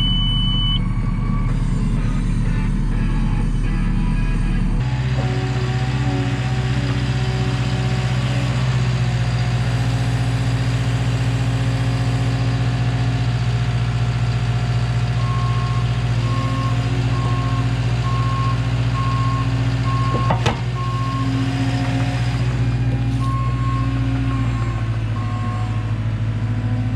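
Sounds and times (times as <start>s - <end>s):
backup alarm beeping: 0.0s - 1.8s
diesel engine running under load: 0.0s - 26.9s.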